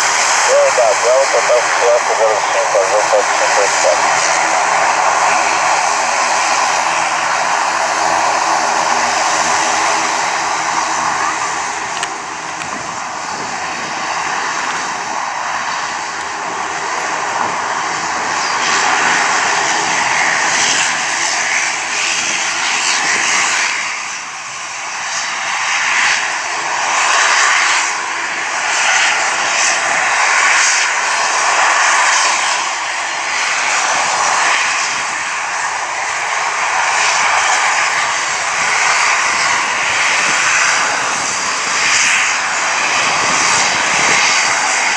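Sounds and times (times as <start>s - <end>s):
rushing noise: 0.0s - 15.6s, 33.6s - 44.9s
airliner engine hum: 0.0s - 44.9s.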